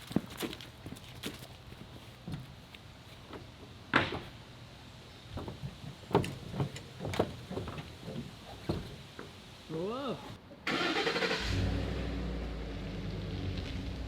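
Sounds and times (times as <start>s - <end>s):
irregular knocks and clunks: 3.3s - 4.4s, 5.3s - 9.4s.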